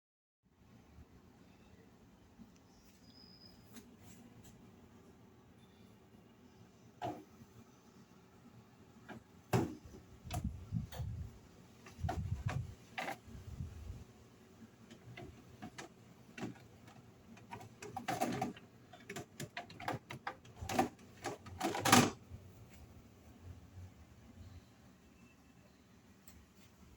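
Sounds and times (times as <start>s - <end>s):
household items clicking and thumping: 9.1s - 11.1s, 14.9s - 22.2s.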